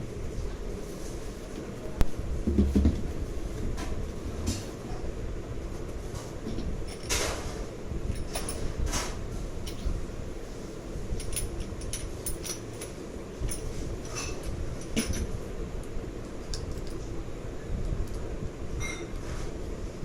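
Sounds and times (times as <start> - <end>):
low background hum: 0.0 - 20.0
clinks of small parts and tools: 6.8 - 7.4, 8.1 - 9.9, 11.2 - 15.3.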